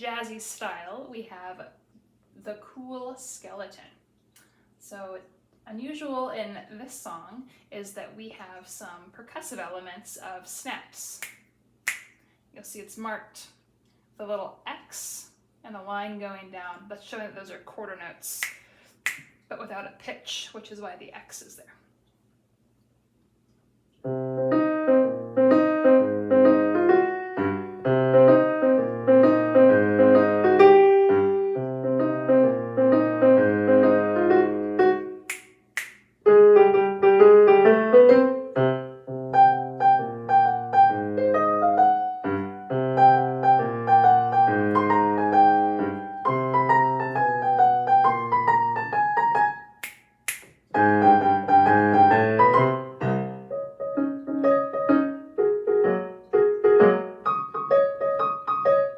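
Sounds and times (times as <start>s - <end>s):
finger snaps: 11.2s - 12.2s, 18.4s - 19.4s, 35.3s - 36.1s, 49.8s - 50.6s
jazzy piano piece: 24.0s - 35.4s, 36.2s - 49.8s, 50.7s - 58.9s.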